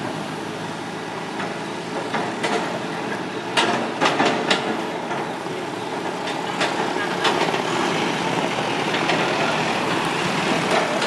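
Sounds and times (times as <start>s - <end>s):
excavator engine running: 0.0s - 11.0s.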